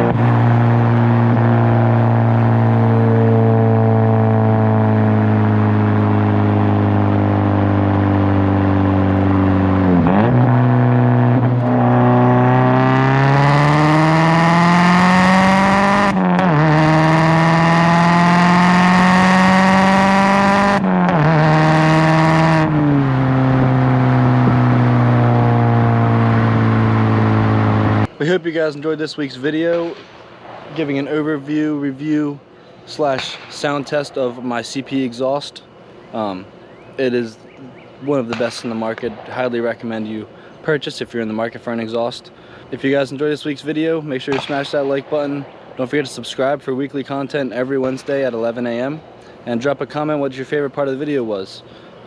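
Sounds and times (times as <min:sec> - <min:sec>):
car engine accelerating: 0:00.0 - 0:28.2.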